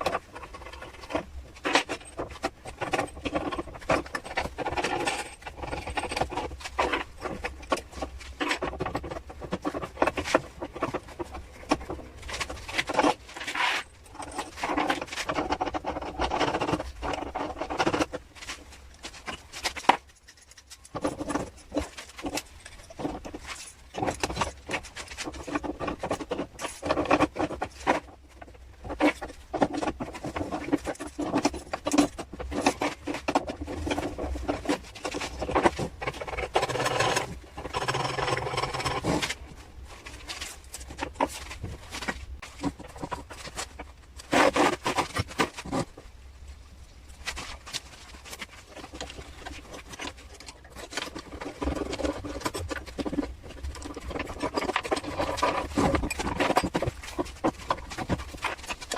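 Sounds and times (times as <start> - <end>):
clicking and tapping of small parts: 0.0 - 39.4.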